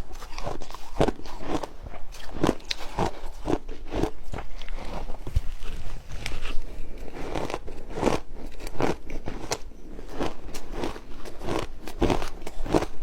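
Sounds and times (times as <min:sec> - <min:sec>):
crunchy chewing of ice: 0:00.0 - 0:13.0.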